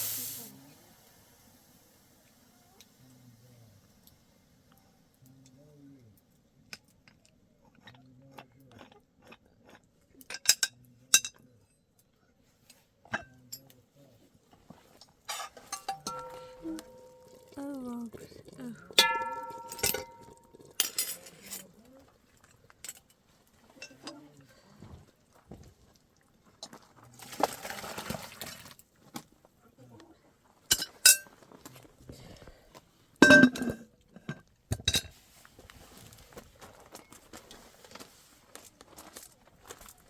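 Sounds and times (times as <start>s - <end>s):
metal pots and dishes clattering: 15.3s - 17.6s, 19.0s - 21.6s, 30.7s - 31.4s, 33.2s - 35.2s.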